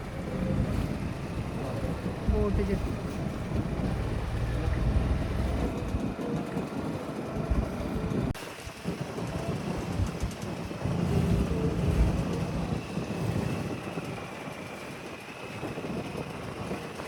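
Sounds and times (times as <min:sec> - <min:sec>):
boat engine: 0:00.0 - 0:17.0
wind buffeting microphone: 0:00.0 - 0:17.0.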